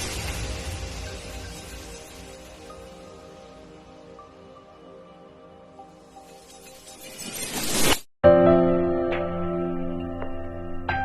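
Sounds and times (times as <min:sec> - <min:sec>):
soft background music: 0:00.4 - 0:07.1.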